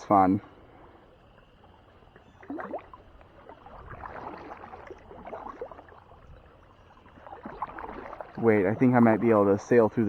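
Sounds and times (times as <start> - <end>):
paddle splashing in shallow water: 1.0 - 10.0
water dripping and gurgling: 1.2 - 10.0.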